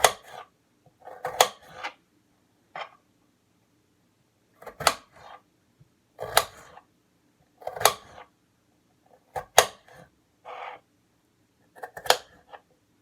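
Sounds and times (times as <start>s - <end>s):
knife chopping on cutting board: 0.0s - 0.5s, 1.1s - 2.0s, 4.6s - 5.4s, 6.2s - 6.8s, 7.6s - 8.3s, 9.4s - 10.1s, 11.8s - 12.6s.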